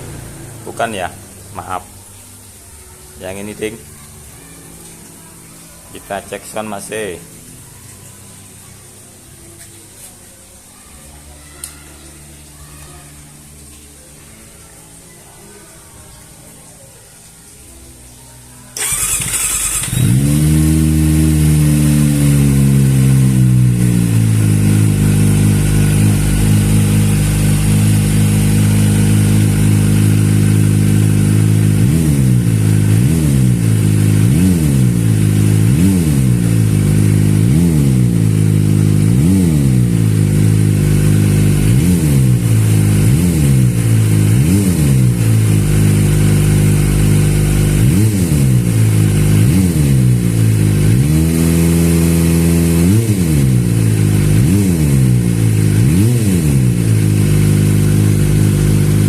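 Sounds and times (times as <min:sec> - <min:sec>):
motorcycle engine starting: 0:18.7 - 0:59.0
motorcycle engine idling: 0:18.8 - 0:59.0
throttle blips revving engine: 0:18.8 - 0:59.0.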